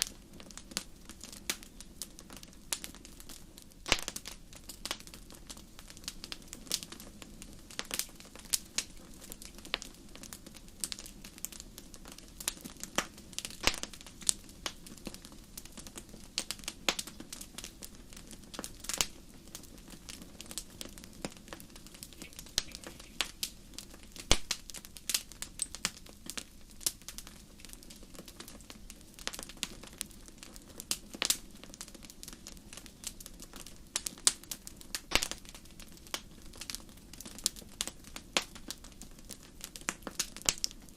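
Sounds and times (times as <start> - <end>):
fire crackling and popping: 0.0 - 40.9
faint low background hum: 3.4 - 31.6.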